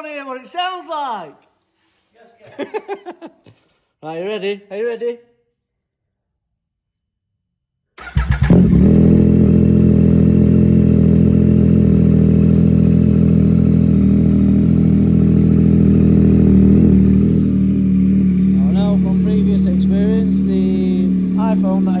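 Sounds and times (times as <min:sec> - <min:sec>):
motorcycle engine starting and idling: 0:08.0 - 0:22.0.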